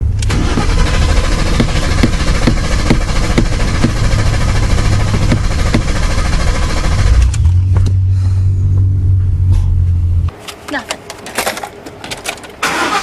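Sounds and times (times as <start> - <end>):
engine running low rumble: 0.0 - 10.4
starter cranking engine: 0.1 - 7.6, 12.6 - 13.0.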